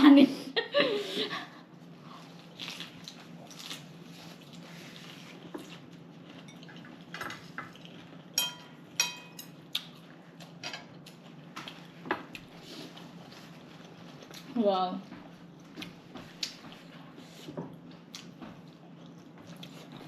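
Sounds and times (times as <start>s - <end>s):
cutlery clinking on plates: 8.4s - 9.6s.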